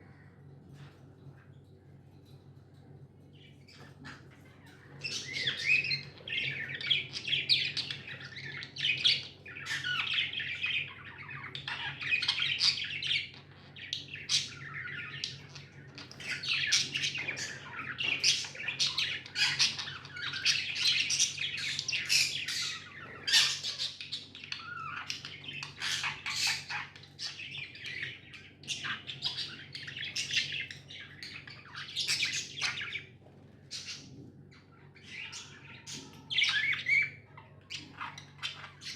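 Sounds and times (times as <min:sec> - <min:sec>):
budgerigars chattering: 0:03.7 - 0:33.1.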